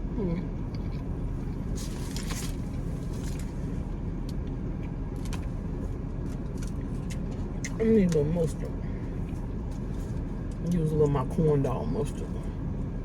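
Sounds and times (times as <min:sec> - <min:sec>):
car engine rumble: 0:00.0 - 0:13.0
person eating clicks and rustles: 0:04.2 - 0:10.7.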